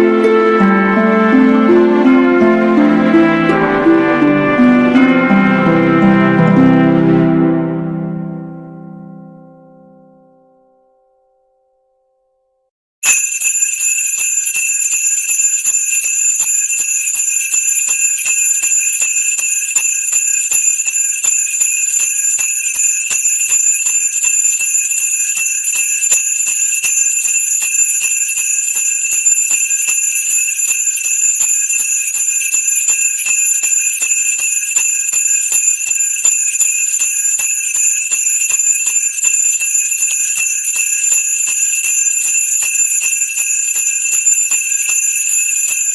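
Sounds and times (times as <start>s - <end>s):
sleigh bells jingling: 13.0s - 45.9s.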